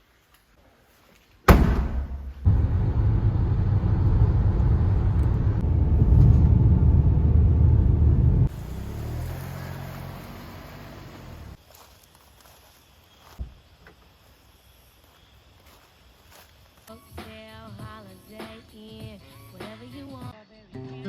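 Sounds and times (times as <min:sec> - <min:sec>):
car door thud: 0:01.5 - 0:02.4
car engine low rumble: 0:02.2 - 0:11.6.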